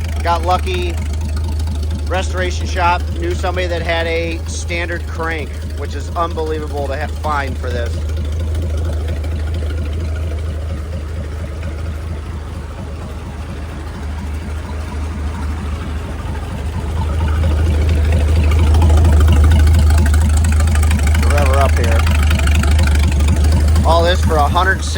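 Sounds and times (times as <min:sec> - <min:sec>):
boat engine humming: 0:00.0 - 0:24.9.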